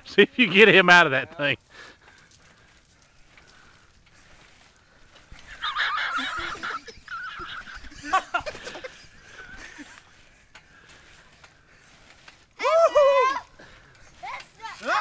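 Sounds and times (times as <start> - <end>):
child shrieking and squealing: 12.6 - 13.5, 14.7 - 15.0.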